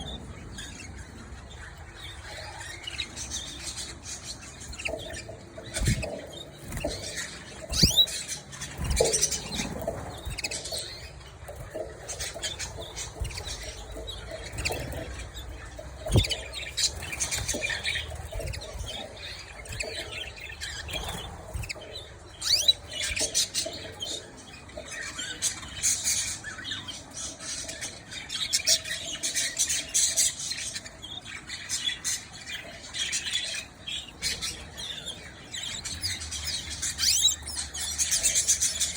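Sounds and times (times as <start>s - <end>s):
canaries chirping: 0.0s - 38.9s
canaries fluttering wings: 2.3s - 26.3s.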